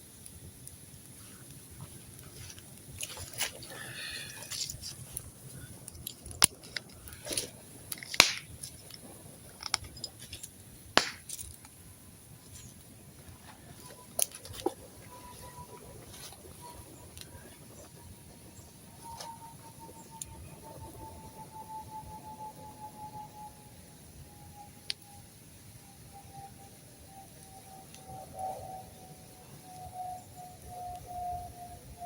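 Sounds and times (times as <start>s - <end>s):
campfire crackling and popping: 0.0s - 21.6s, 24.0s - 25.8s.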